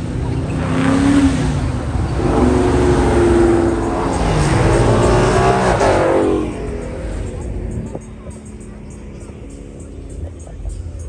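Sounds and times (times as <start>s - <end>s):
car engine revving hard: 0.5s - 7.7s.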